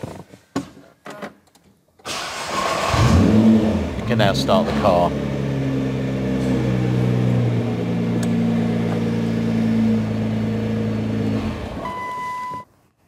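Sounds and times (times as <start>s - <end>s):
car engine idling: 3.0s - 11.8s.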